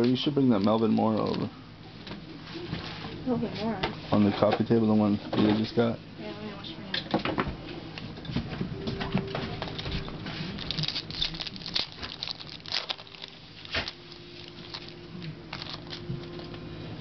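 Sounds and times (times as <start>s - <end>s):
card pack wrappers crinkling and tearing: 0.5s - 1.5s, 9.6s - 16.6s.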